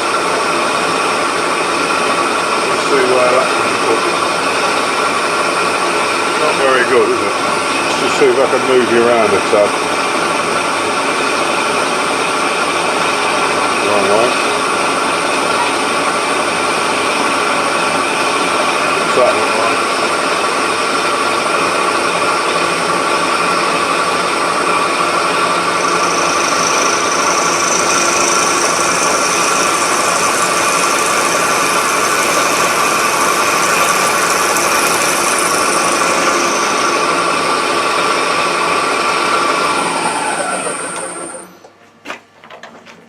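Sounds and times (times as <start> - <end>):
milling machine running: 0.0 - 41.7
cutting hiss: 25.8 - 37.4.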